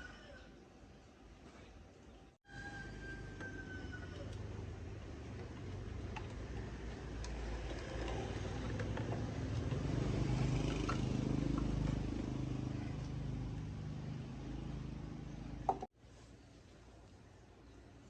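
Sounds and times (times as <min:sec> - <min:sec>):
engine running: 0:04.3 - 0:15.9.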